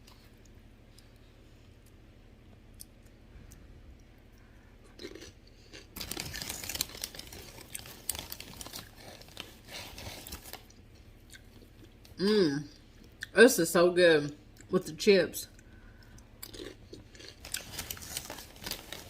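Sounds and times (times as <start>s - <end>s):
crunching corn chips: 5.0s - 10.8s, 16.0s - 19.0s.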